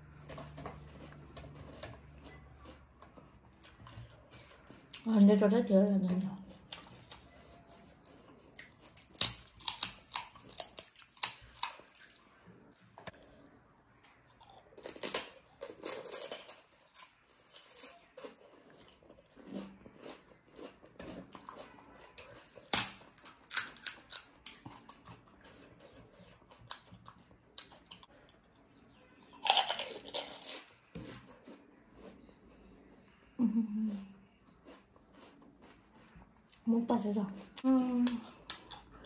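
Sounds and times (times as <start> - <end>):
chewing: 0.0 - 5.1, 6.0 - 33.0, 34.4 - 36.6
crunching crisp shells: 6.6 - 12.3, 14.4 - 27.9, 29.3 - 32.1.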